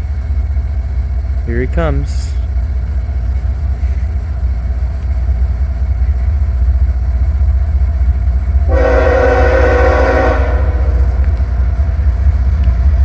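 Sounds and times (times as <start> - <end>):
diesel locomotive rumbling: 0.0 - 13.0
train air horn blast: 8.7 - 11.3.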